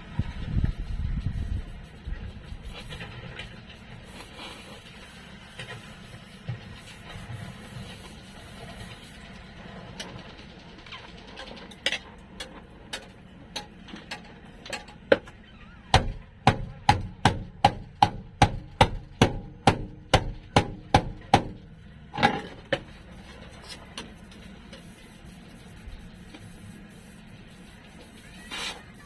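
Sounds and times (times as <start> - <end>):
hammer striking sheet steel: 11.8 - 23.0.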